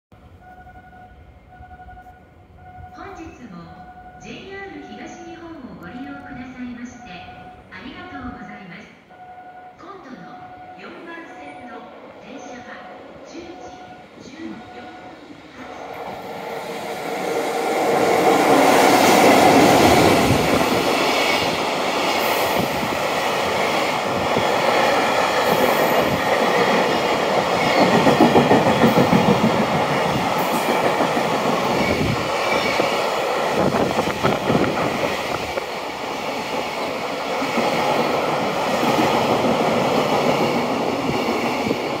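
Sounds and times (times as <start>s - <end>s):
freight train passing: 0.2s - 42.0s
wheels clattering on rails: 17.9s - 35.7s.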